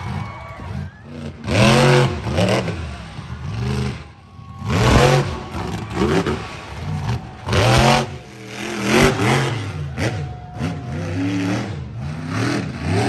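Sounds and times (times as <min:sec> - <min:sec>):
truck engine revving hard: 0:00.0 - 0:13.0.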